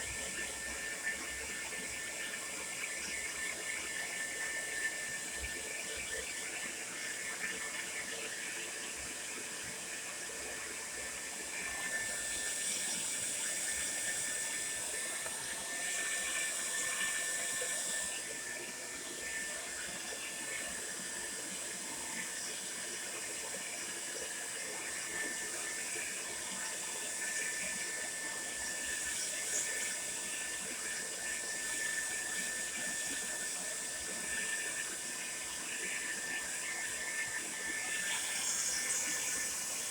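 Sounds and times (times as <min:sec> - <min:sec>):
hair dryer running: 0:11.6 - 0:21.3.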